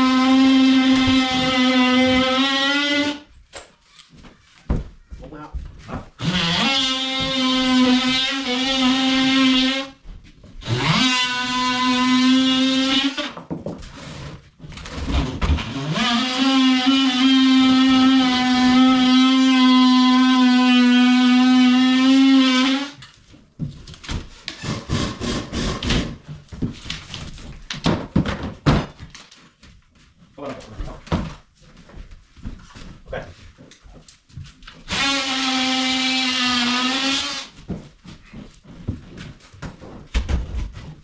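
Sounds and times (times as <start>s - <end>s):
power tool motor whining: 34.9s - 37.6s.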